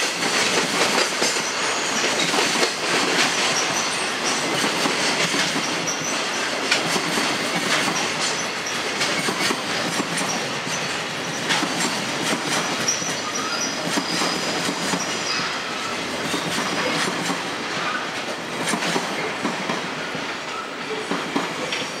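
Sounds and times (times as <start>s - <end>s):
train wheels clattering over rails: 0.0s - 22.0s
high wheel squeal: 1.4s - 2.3s, 12.6s - 17.1s.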